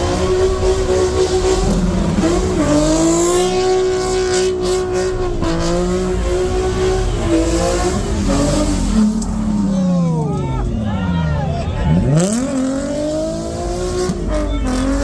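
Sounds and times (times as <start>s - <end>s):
car engine at high revs: 0.0s - 15.0s.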